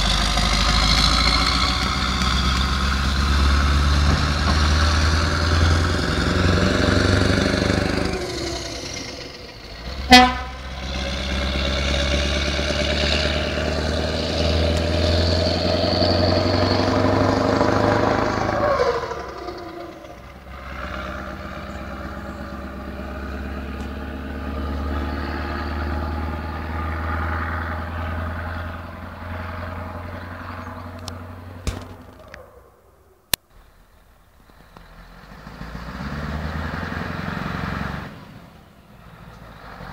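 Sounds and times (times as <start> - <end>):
diesel truck engine under load: 0.0 - 39.9
loud engine blip: 10.0 - 10.8.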